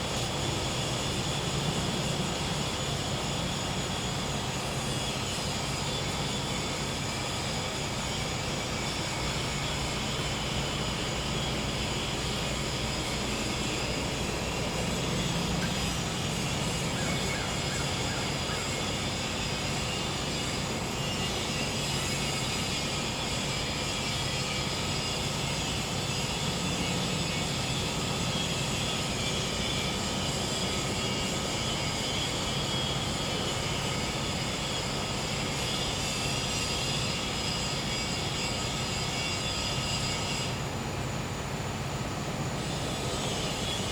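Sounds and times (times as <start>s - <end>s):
generator humming: 0.0s - 21.1s
crickets trilling: 0.0s - 43.9s.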